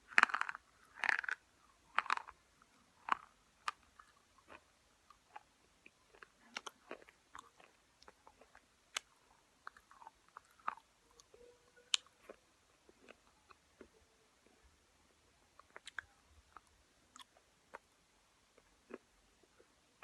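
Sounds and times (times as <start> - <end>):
chewing brittle chips: 0.1 - 2.4, 3.0 - 13.9.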